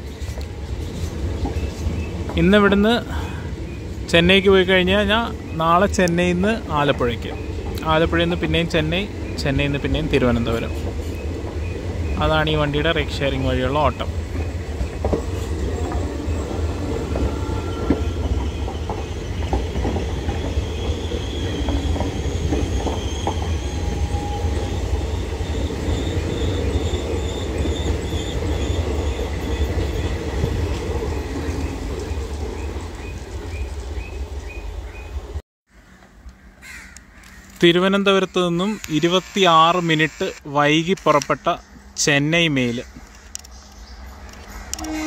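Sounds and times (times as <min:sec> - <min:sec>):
clickety-clack over rail joints: 0:00.0 - 0:03.1, 0:03.9 - 0:34.2
train wheels rumbling: 0:00.0 - 0:35.4
high wheel squeal: 0:13.2 - 0:31.8, 0:44.5 - 0:45.0.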